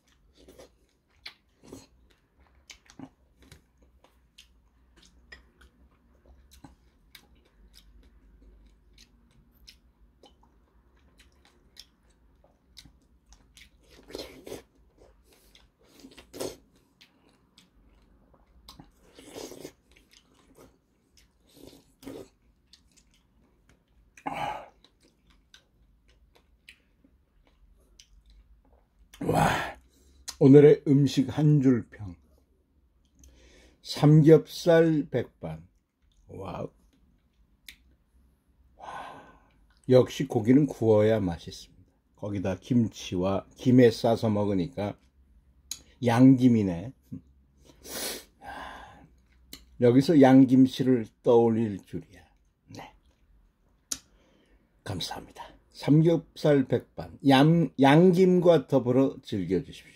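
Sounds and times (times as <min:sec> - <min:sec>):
man chewing strawberries: 0:00.0 - 0:30.4, 0:35.7 - 0:39.9
wet mouth smacks and clicks: 0:53.8 - 0:54.1.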